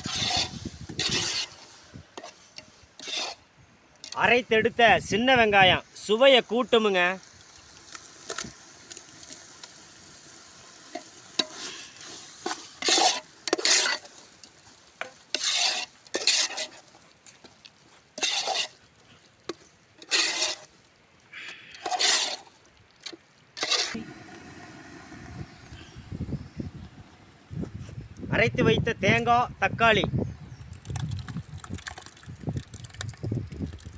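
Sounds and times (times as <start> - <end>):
ladle scraping a pan: 0.0 - 4.2, 10.9 - 17.1, 18.1 - 18.8, 19.5 - 20.7, 21.7 - 22.6, 23.6 - 25.9
shallots sizzling in oil: 0.0 - 4.3, 5.8 - 28.2.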